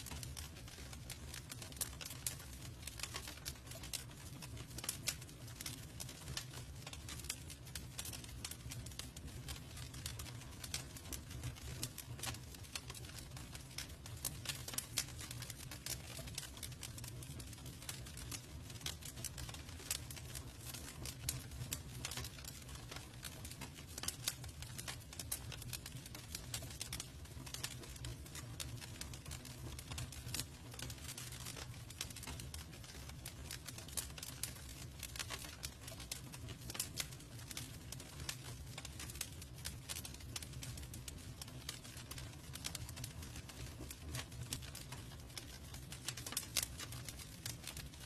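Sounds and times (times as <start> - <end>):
burning wood popping: 0.0 - 48.0
campfire crackling: 0.0 - 48.0
low rumble of flames: 0.0 - 48.0.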